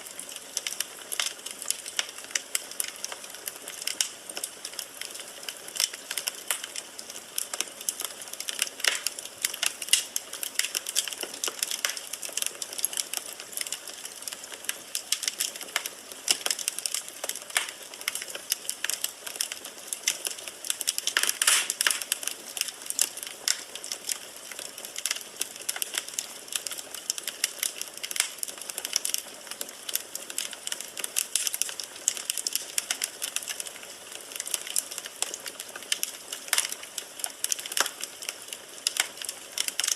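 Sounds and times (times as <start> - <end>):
firewood crackling and popping: 0.0 - 39.9
fire hiss: 21.0 - 22.2.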